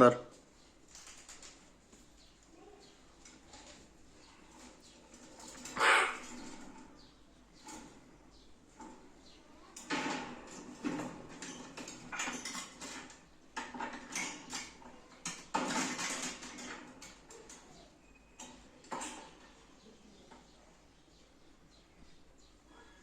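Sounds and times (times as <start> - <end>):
clattering and clinking: 9.7 - 19.6.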